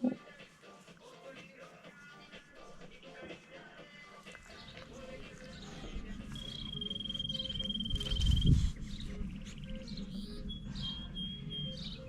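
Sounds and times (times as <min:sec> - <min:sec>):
low rumble: 0:04.7 - 0:12.0.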